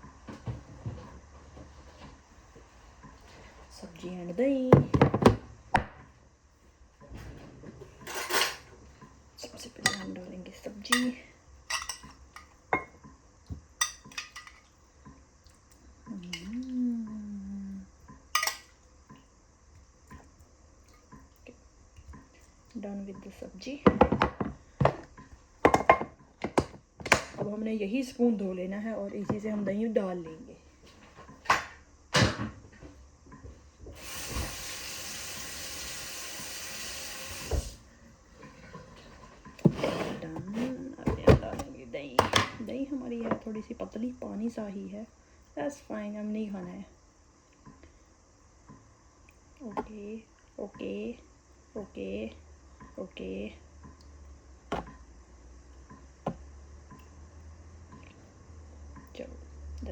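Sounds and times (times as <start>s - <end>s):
spoon clinking on metal containers: 9.8s - 10.2s, 10.9s - 12.9s, 13.8s - 14.7s, 18.4s - 18.7s
kitchen tap running: 33.9s - 37.9s.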